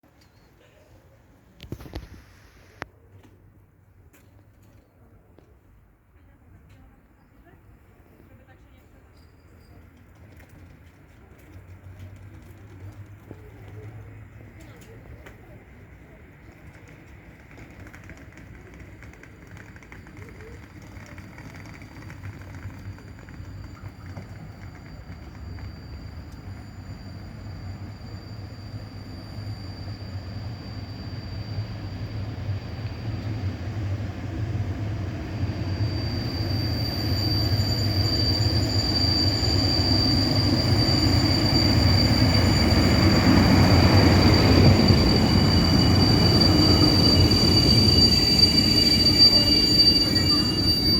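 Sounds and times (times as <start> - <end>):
train rumble: 0.1 - 50.9
high wheel squeal: 19.3 - 33.4, 34.8 - 50.9.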